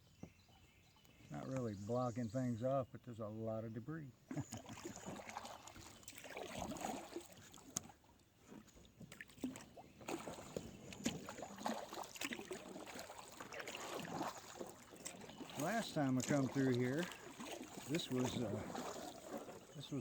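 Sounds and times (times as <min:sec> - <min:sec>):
paddle splashing in water: 0:04.2 - 0:20.0.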